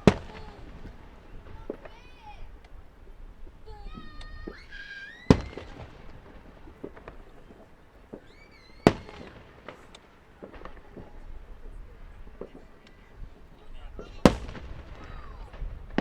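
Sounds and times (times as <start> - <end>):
firework pops and crackles: 0.0 - 16.0
loud firework bangs: 0.0 - 16.0.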